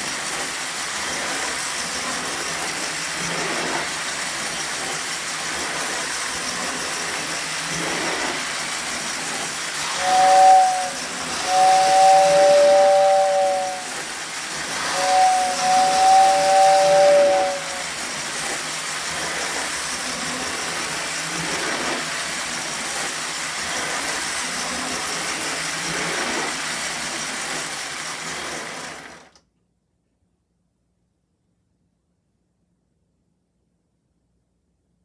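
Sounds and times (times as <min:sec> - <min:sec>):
toy train whirring on track: 0:00.0 - 0:29.4
two-note train whistle: 0:09.5 - 0:18.8.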